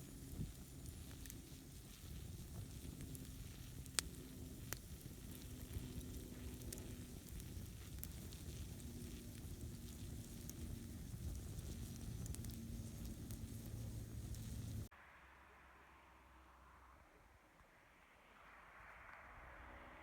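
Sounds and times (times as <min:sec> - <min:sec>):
fire crackling and popping: 0:00.0 - 0:14.9
campfire low rumble: 0:00.0 - 0:20.0.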